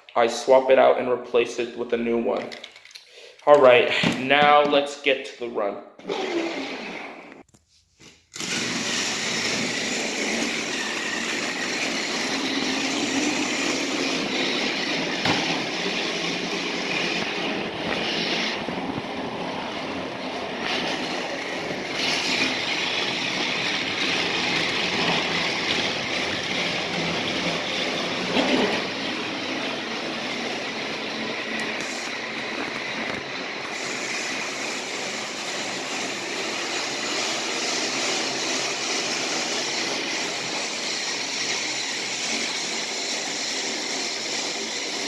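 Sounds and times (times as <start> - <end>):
toy train motor whir: 8.3 - 15.2, 20.6 - 30.2, 30.9 - 45.0.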